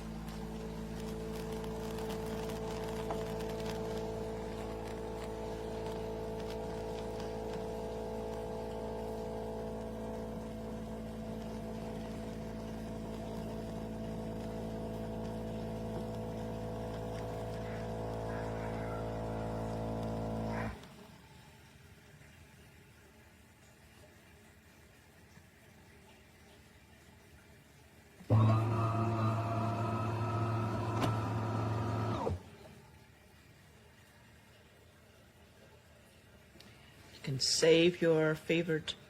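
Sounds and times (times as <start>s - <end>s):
espresso machine pump hum: 0.0s - 21.1s, 28.3s - 32.8s.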